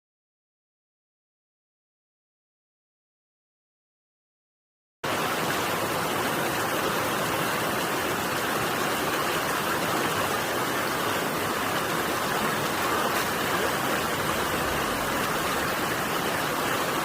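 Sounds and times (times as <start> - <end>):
stream rushing water: 5.0 - 17.0.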